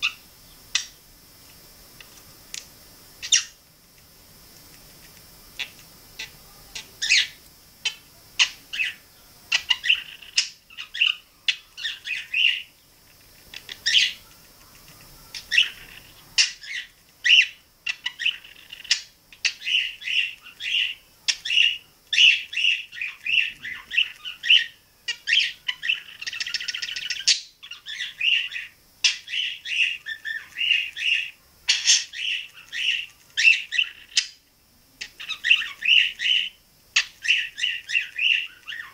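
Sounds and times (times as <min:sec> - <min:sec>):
budgerigar chattering: 0:05.6 - 0:12.7, 0:15.3 - 0:34.4.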